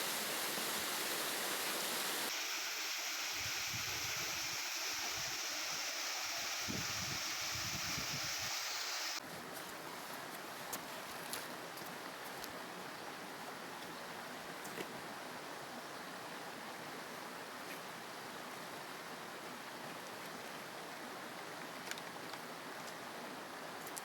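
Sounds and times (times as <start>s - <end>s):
rushing flowing water: 0.0s - 9.2s.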